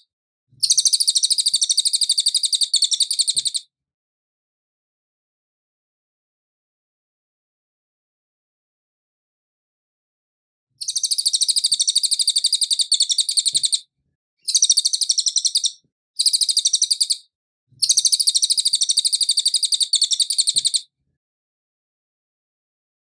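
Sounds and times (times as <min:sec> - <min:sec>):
bird high-pitched trill: 0:00.6 - 0:03.6, 0:10.8 - 0:13.8, 0:14.5 - 0:20.8.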